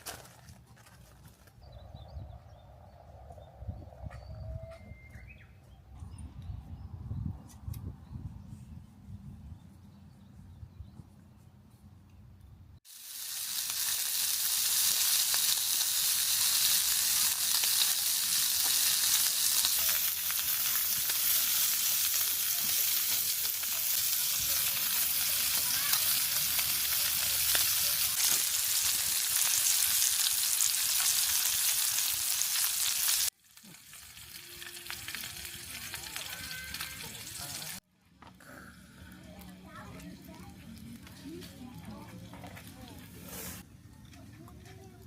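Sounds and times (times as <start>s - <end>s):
meat sizzling on a grill: 12.9s - 37.8s.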